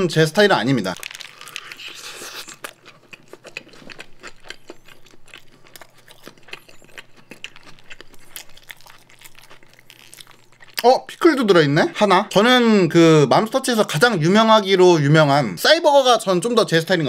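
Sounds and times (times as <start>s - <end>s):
chewing with crunches: 0.9s - 11.3s.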